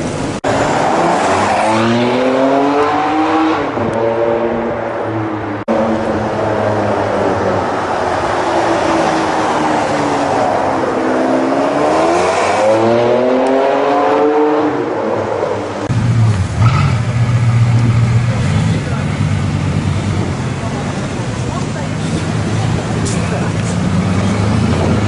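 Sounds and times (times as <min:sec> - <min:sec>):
car engine revving: 0:00.4 - 0:25.0
deep engine rumble: 0:15.8 - 0:25.0.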